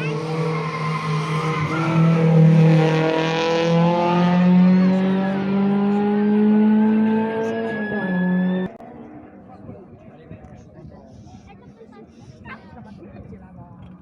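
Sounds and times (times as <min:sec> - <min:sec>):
rally car engine under load: 0:00.0 - 0:08.8.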